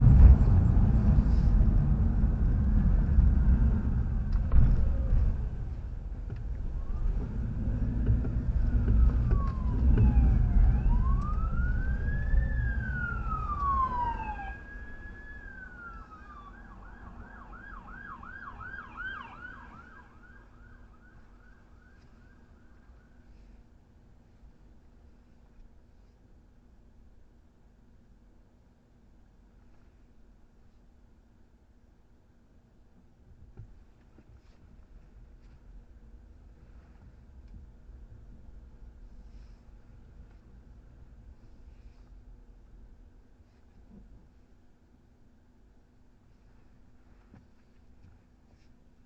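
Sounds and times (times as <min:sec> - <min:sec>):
low rumble of traffic: 0:00.0 - 0:49.0
police siren wailing and yelping: 0:06.8 - 0:22.5.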